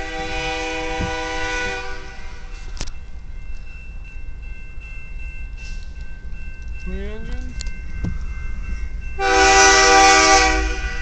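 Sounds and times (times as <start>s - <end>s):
train air horn chord: 0.0s - 2.5s, 9.2s - 11.0s
low rumble of train: 0.0s - 11.0s.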